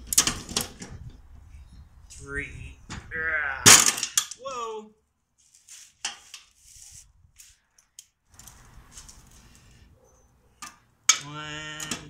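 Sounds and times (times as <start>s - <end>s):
rustling handling noise: 5.4s - 10.0s.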